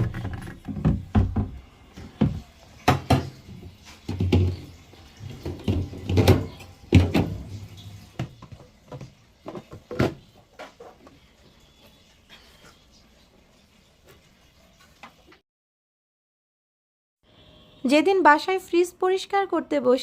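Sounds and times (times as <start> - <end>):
pots knocking on fridge shelves: 0.0 - 11.2.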